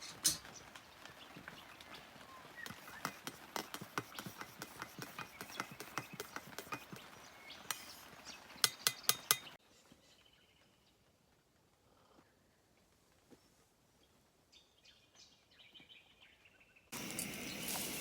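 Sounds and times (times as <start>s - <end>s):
sharp clicks and knocks: 8.6s - 9.6s.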